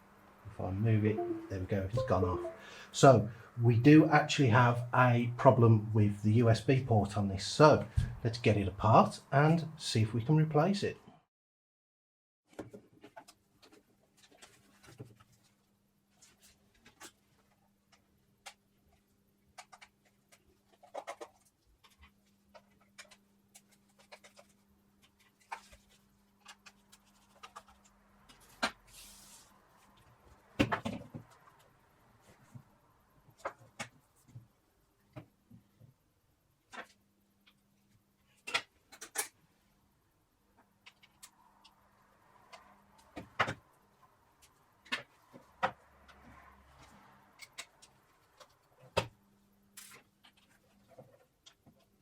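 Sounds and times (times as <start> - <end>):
plastic clicks and scrapes: 19.5 - 28.8.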